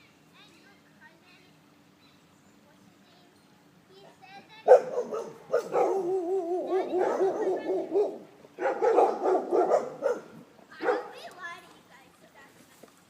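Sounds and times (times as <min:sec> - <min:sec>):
dog howling and whining: 0:04.9 - 0:10.4.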